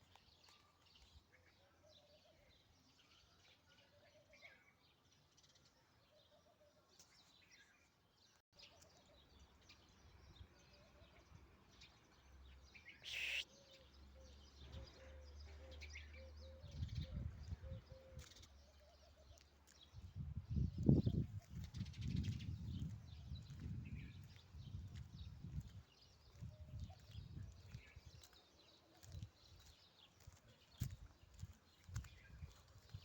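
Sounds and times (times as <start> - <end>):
birds chirping: 7.2 - 33.0.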